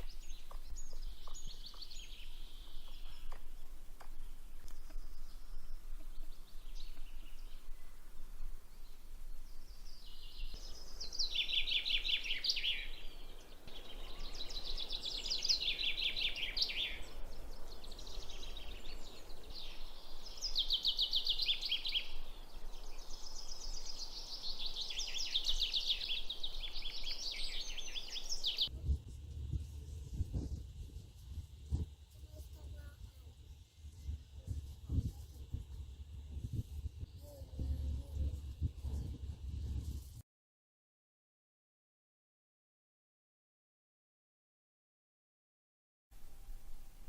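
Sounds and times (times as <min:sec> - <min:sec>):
songbird singing trilled phrases: 0:00.0 - 0:28.7
outdoor hiss: 0:46.2 - 0:47.0.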